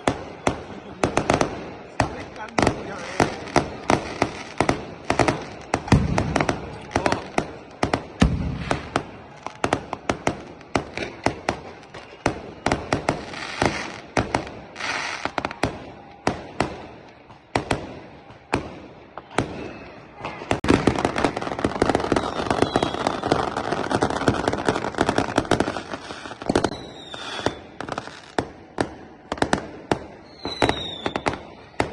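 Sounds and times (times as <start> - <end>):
crackling fireworks hiss: 0.0 - 31.9
fireworks cracking and banging: 0.0 - 31.9.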